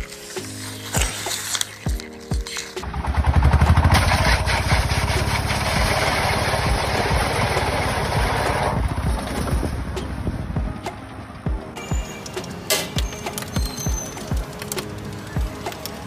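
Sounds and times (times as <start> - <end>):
engine running with fast pulse: 2.8 - 10.8.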